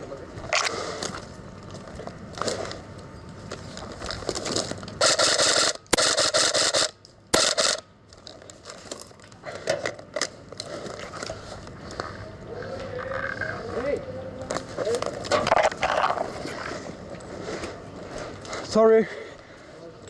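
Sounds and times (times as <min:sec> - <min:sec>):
airsoft rifle firing bursts: 0:05.0 - 0:07.8.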